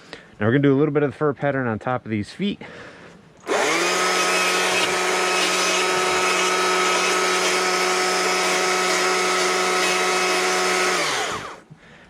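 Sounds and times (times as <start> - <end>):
die grinder whining: 3.4 - 11.6.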